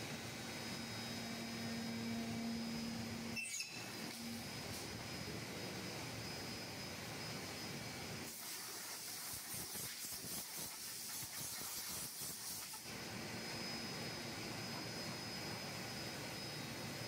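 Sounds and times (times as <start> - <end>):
low machine hum: 0.0 - 8.2
thin high whine: 0.0 - 17.0
machine hissing: 8.2 - 17.0.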